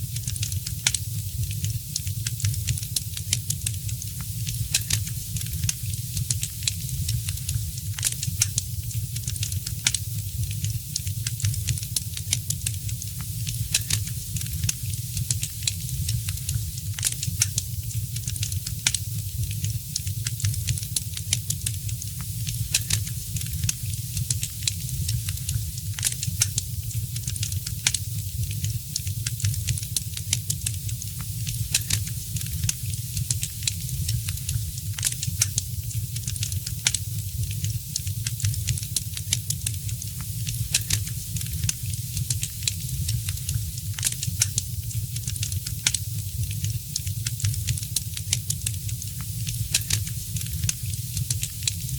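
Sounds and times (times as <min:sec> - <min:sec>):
low rumble of flames: 0:00.0 - 0:51.9
fire crackling and popping: 0:00.1 - 0:51.9.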